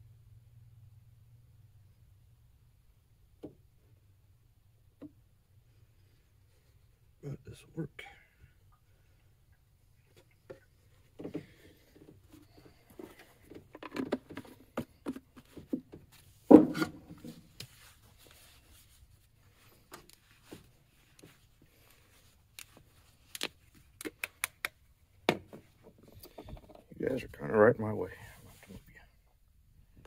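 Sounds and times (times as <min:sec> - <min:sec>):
plastic bottles clicking and knocking: 0:12.9 - 0:17.1.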